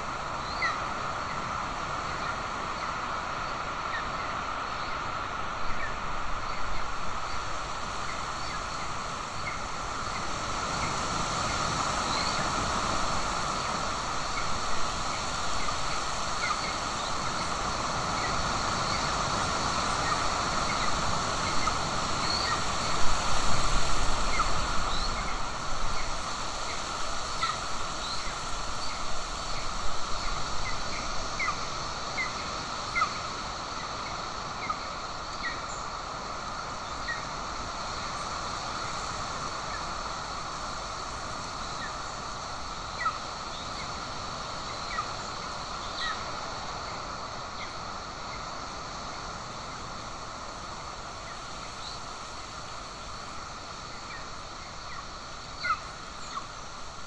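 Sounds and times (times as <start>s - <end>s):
background hiss: 0.0s - 57.0s
high-pitched bird calls: 0.4s - 1.4s.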